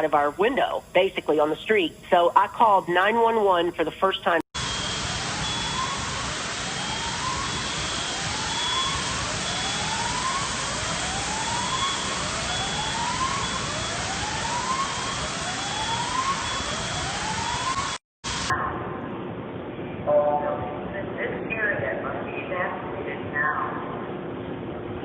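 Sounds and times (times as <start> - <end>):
whooping siren: 4.6 - 18.0
loud steady hiss: 4.6 - 18.5.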